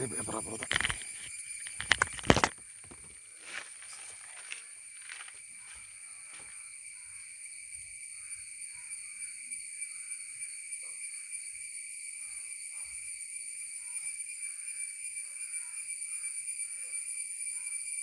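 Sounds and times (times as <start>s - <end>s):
sharp clicks and knocks: 0.0s - 3.1s.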